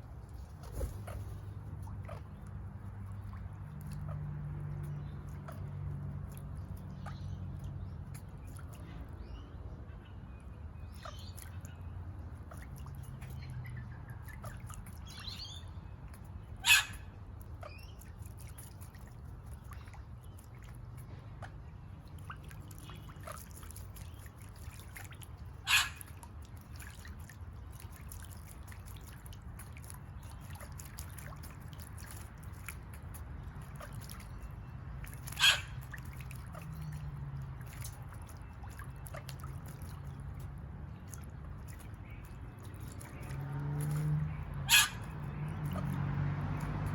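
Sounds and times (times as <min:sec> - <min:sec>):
parrot harsh call: 0:35.4 - 0:35.7, 0:44.7 - 0:45.0.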